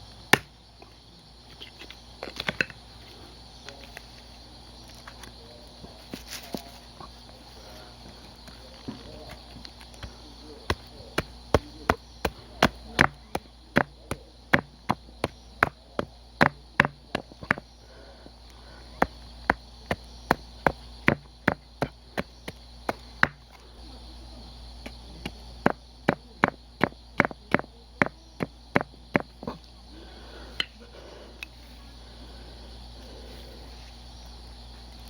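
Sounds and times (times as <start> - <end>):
hand axe chopping wood: 0.3 - 0.5, 10.0 - 17.6, 19.0 - 23.4.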